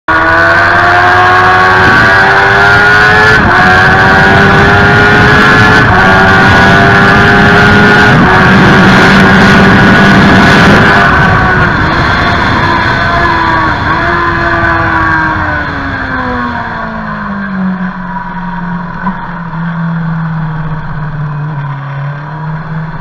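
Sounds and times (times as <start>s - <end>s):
motorcycle engine accelerating hard: 0.1s - 23.0s
wind noise: 0.2s - 23.0s.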